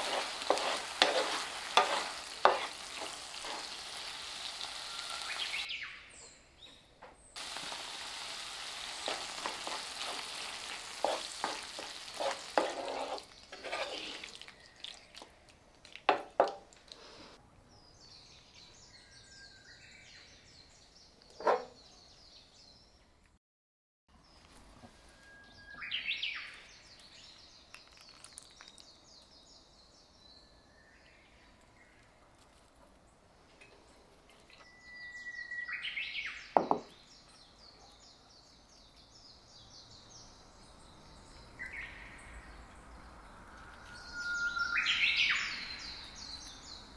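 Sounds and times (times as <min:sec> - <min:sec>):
birds singing: 0:00.6 - 0:07.4, 0:17.7 - 0:23.2, 0:25.3 - 0:32.2, 0:33.8 - 0:46.9.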